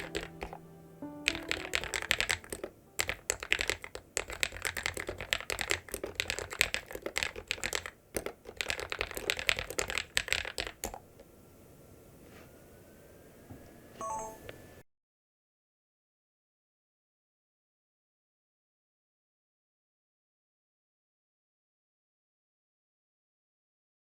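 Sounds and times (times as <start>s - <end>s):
mechanical keyboard typing: 0.0s - 0.6s, 1.2s - 11.0s.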